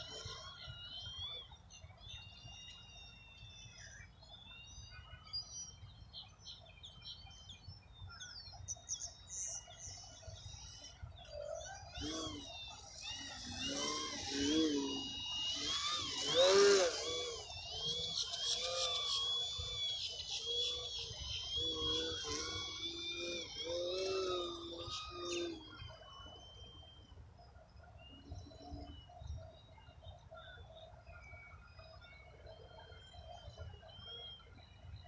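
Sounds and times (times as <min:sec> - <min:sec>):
model airplane motor whining: 0:00.0 - 0:03.7, 0:10.2 - 0:27.6.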